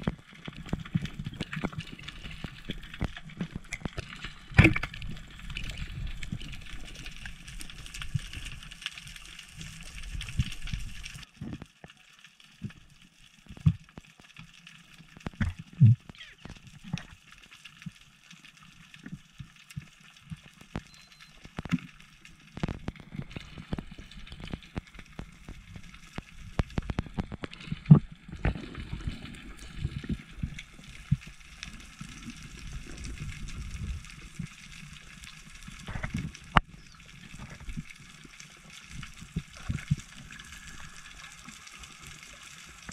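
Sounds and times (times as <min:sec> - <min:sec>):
underwater clicks and knocks: 0:00.0 - 0:06.5, 0:15.2 - 0:17.2, 0:22.5 - 0:29.2, 0:35.8 - 0:37.9
water sloshing and gurgling: 0:00.0 - 0:11.9, 0:12.6 - 0:18.0, 0:18.9 - 0:42.9
short clicks and crackles: 0:00.0 - 0:42.9.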